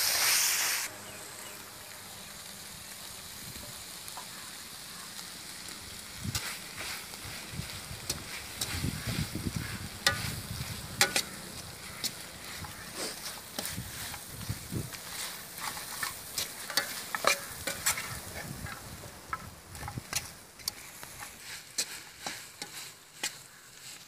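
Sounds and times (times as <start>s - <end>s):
chicken sizzling in oil: 0.0s - 24.0s
metal ladle scraping pan: 6.3s - 24.0s.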